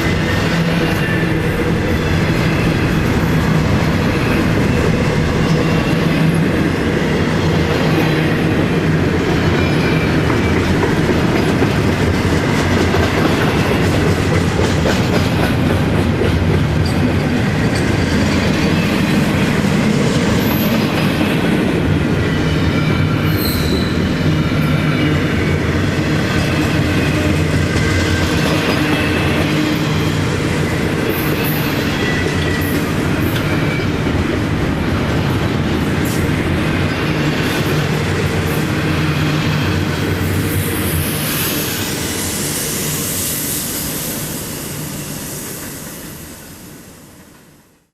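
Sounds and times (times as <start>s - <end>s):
train wheels clattering on rails: 0.0s - 44.8s
high wheel squeals: 22.6s - 25.2s.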